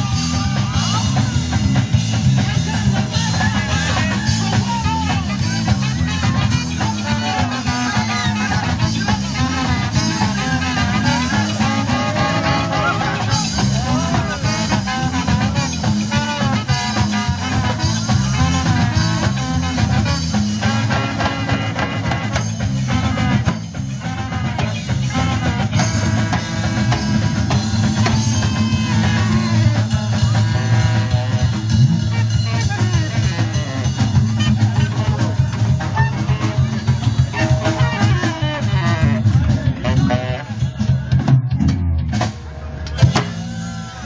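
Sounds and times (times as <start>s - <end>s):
drum kit beat: 0.0s - 44.0s
guitar: 0.0s - 44.0s
pitch-bending melody line: 5.4s - 18.9s, 19.5s - 41.0s.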